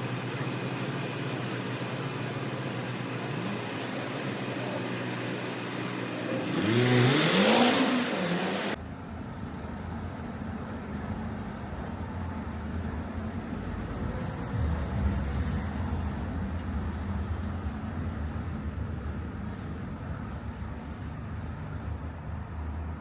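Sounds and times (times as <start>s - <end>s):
car passing and accelerating: 3.0s - 8.8s.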